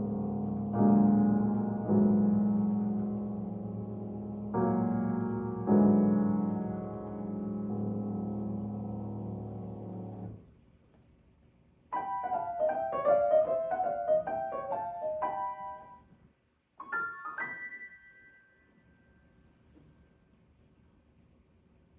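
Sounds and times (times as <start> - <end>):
piano playing: 0.0 - 10.4, 11.9 - 16.1, 16.8 - 18.9.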